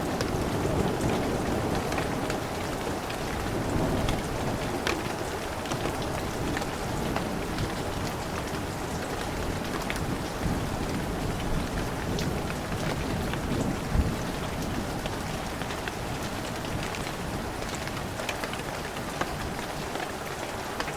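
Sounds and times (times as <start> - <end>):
heavy rain falling: 0.0 - 20.9.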